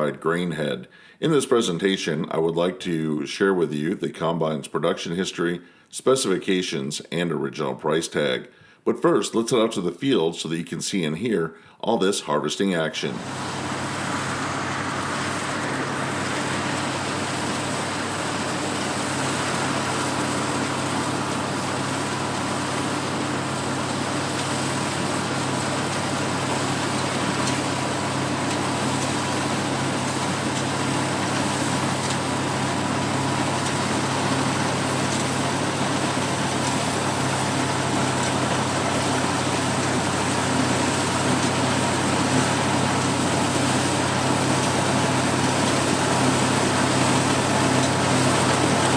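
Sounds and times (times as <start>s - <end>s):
combine harvester droning: 13.1s - 48.9s.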